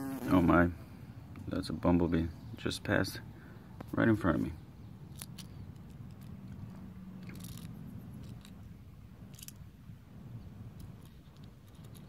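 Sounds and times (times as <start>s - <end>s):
low background hum: 0.5s - 12.0s
handling clicks and scrapes: 5.1s - 9.7s, 10.7s - 12.0s.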